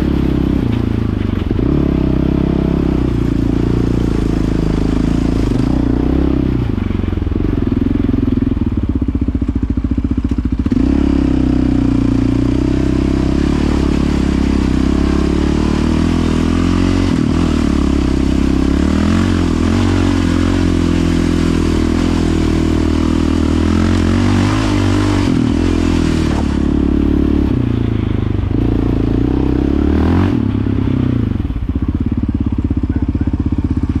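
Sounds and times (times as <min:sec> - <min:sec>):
atv engine revving: 0:00.0 - 0:34.0.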